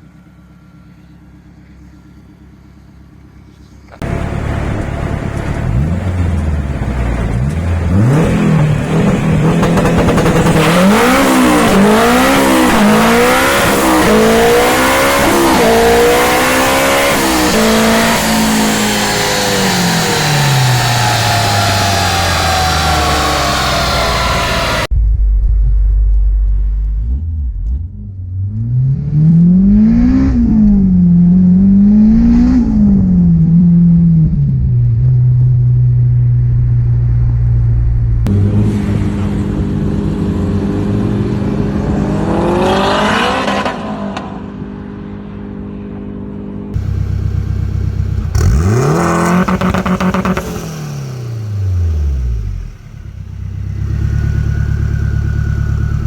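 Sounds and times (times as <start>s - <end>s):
car engine revving: 4.0s - 24.9s, 25.7s - 56.0s.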